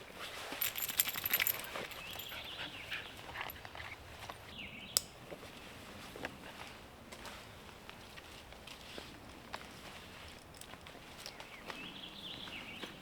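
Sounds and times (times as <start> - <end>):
small clicks and rustles: 0.2 - 2.5
light metallic jingling: 0.5 - 4.6.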